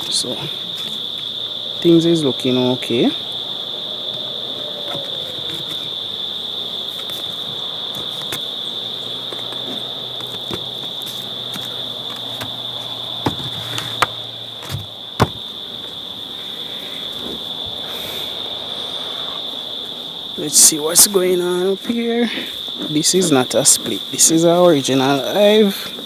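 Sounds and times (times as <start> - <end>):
insects chirring: 0.0 - 26.0
sharp knocks: 13.2 - 15.5.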